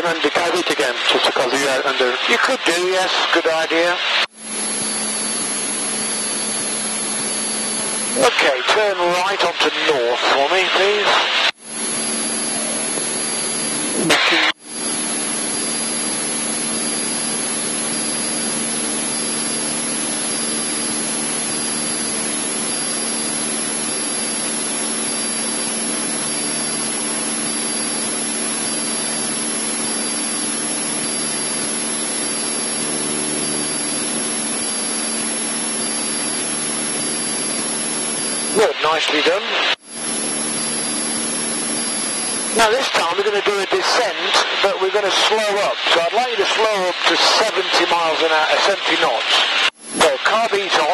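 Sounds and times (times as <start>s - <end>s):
propeller plane engine droning: 4.1s - 38.8s, 39.6s - 43.3s.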